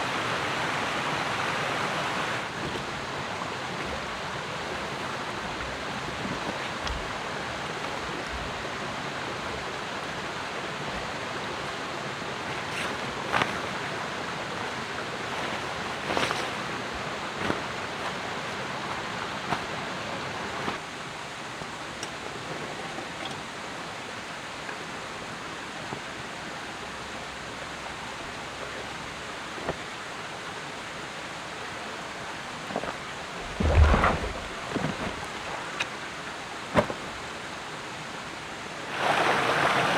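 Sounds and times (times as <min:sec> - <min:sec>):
outdoor rushing noise: 0:33.4 - 0:35.3.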